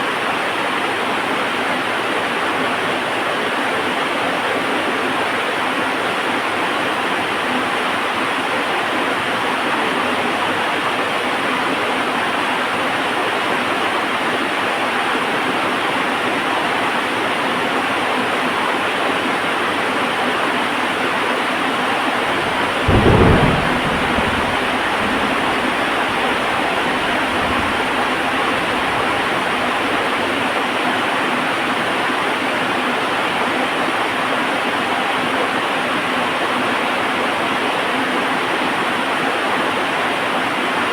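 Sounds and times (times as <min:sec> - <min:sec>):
heavy rain: 0:19.7 - 0:40.9
thunderclap rumbling: 0:21.8 - 0:30.0.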